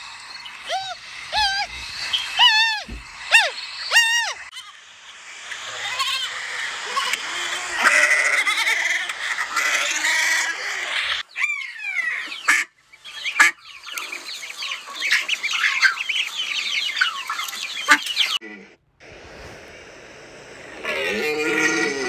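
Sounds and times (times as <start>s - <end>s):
duckling peeping: 0.5s - 4.4s, 12.2s - 18.4s
goat bleating: 7.8s - 8.8s, 21.0s - 22.0s.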